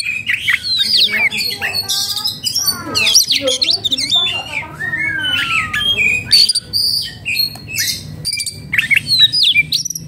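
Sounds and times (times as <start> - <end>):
bird singing varied whistles: 2.4 - 10.0.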